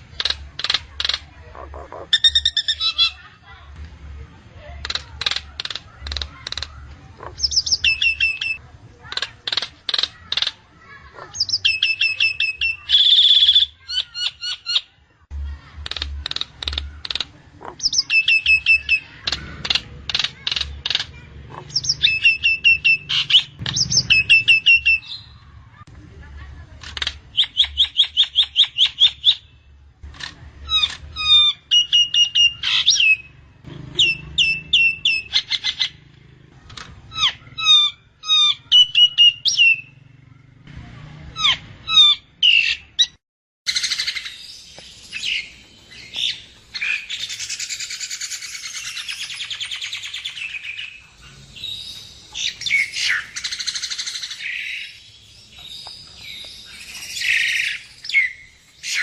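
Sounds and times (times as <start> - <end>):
harsh bird chattering: 0.0 - 3.4, 4.7 - 25.8, 26.6 - 40.2, 41.3 - 59.0
bird whistling repeated notes: 7.4 - 8.6, 11.4 - 14.9, 17.8 - 19.2, 21.7 - 25.4, 31.2 - 33.3.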